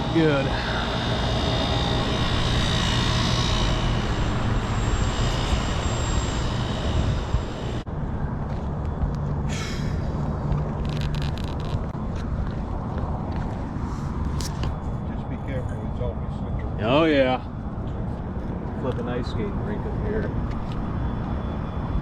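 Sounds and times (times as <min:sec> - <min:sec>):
air conditioning units rushing hiss: 0:00.0 - 0:07.9
low mechanical hum: 0:00.0 - 0:22.0.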